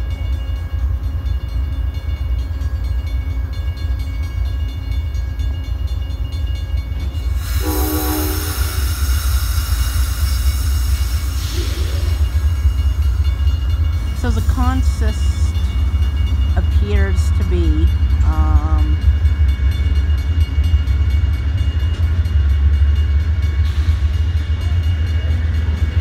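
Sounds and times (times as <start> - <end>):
crossing bell ringing: 0.0 - 26.0
passenger train rumbling: 0.0 - 26.0
air hissing: 7.3 - 12.8
train horn blast: 7.4 - 9.1.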